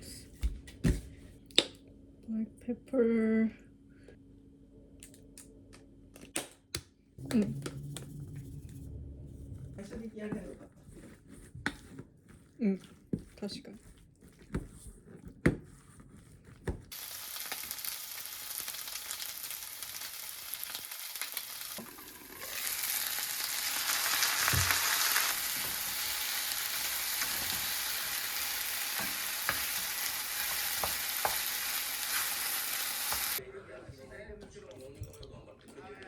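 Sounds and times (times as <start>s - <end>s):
meat sizzling in a frying pan: 16.9s - 33.4s.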